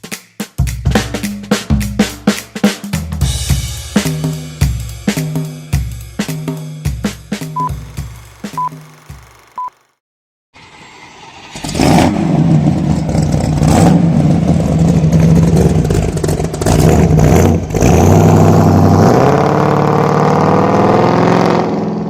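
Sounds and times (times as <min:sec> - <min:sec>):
car engine revving: 0:06.3 - 0:10.0, 0:11.5 - 0:22.0.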